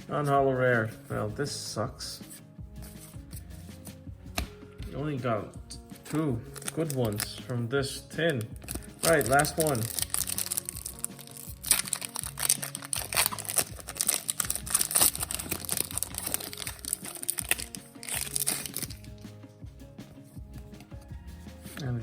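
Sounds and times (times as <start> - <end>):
background music: 0.0 - 22.0
foil wrapper crinkling and tearing: 6.5 - 7.4, 8.3 - 19.2.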